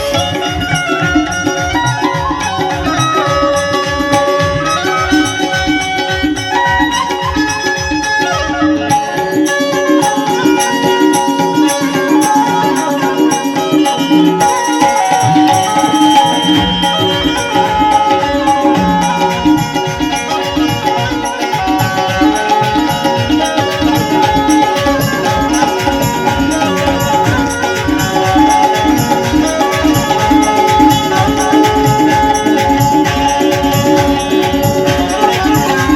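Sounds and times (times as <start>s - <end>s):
banjo melody: 0.0s - 35.9s
steady percussion rhythm: 0.0s - 35.9s.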